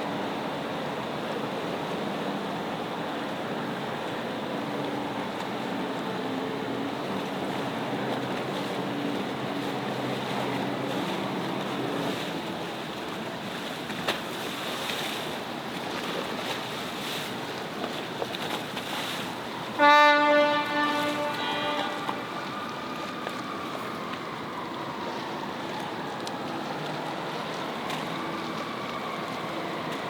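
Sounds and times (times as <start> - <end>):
water: 0.0 - 30.0
horn blast: 19.8 - 22.4.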